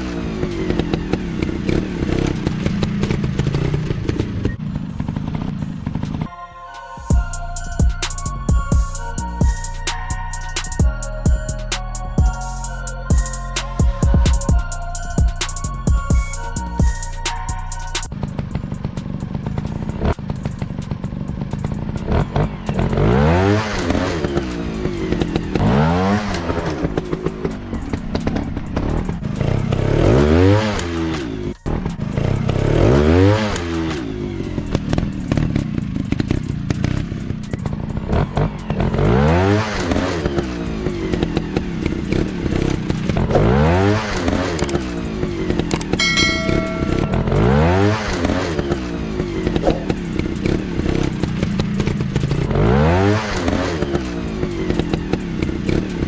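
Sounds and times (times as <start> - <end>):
dirt bike engine revving: 0.0 - 6.3, 18.1 - 56.0.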